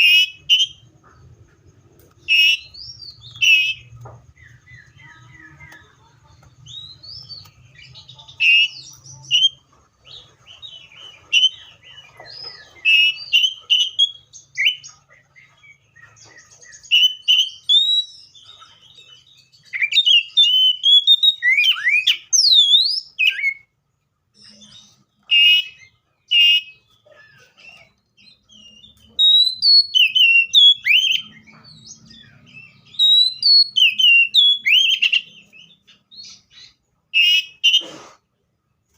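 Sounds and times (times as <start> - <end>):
bird singing whistled phrases: 0.0 - 0.8, 2.2 - 5.7, 11.3 - 14.9, 16.4 - 18.4, 19.6 - 23.7, 24.4 - 31.5, 32.2 - 37.8.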